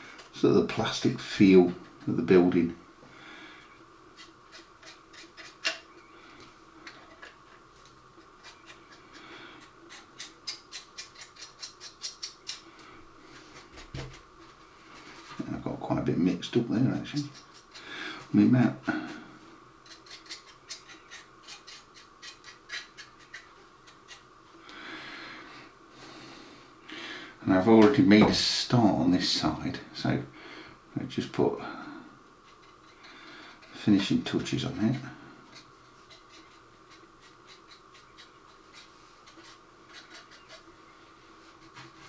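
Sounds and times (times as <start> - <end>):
brush scratchy strokes: 32.4 - 42.0.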